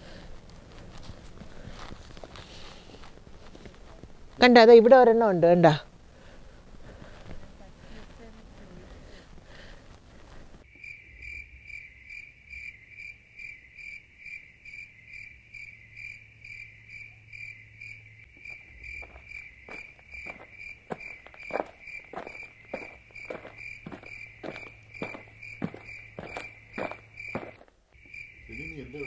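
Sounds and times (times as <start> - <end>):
cricket chirping: 10.6 - 29.0.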